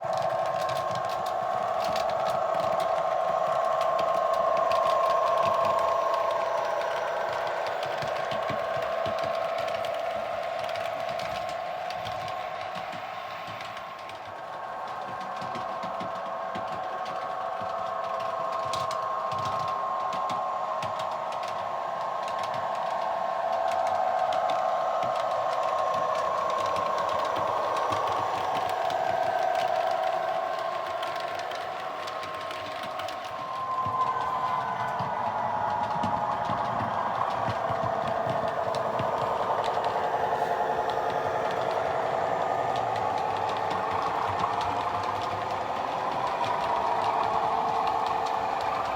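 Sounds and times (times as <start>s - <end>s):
train whine with rapid rattle: 0.0s - 48.9s
faint ticking: 22.0s - 48.9s.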